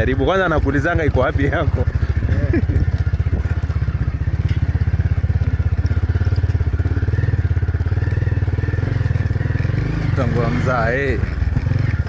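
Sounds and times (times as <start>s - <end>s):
small engine running steadily: 0.0s - 12.0s.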